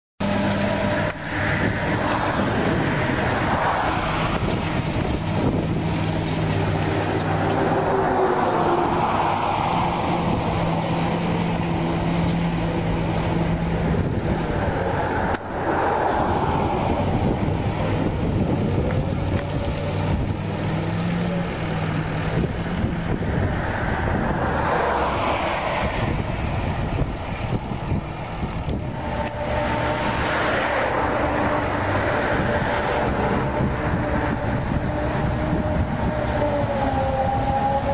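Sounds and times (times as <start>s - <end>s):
dumper engine running: 0.2s - 37.9s.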